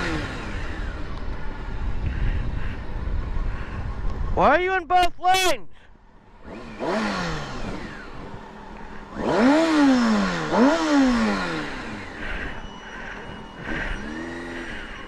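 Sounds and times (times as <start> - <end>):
motorcycle engine revving: 0.0 - 4.0, 6.2 - 15.0
wind noise on microphone: 0.1 - 5.0.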